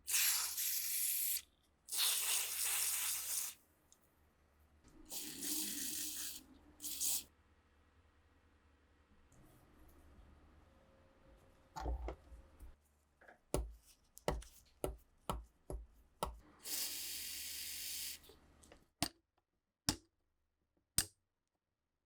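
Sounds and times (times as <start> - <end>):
sharp taps and knocks: 13.6 - 16.4.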